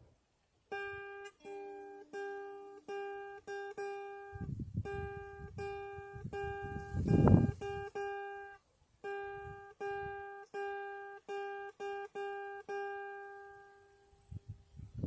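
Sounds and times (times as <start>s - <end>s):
guitar note plucked: 0.7s - 14.1s
soft low thumps: 4.3s - 7.8s.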